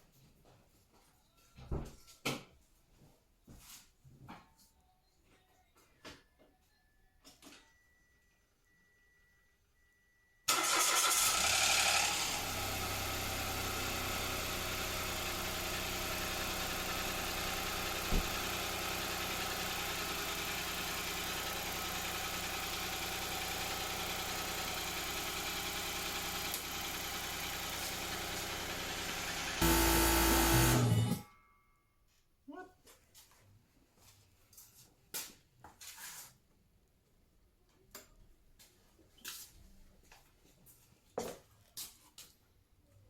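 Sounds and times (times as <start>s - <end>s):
car engine starting and idling: 10.5s - 31.2s.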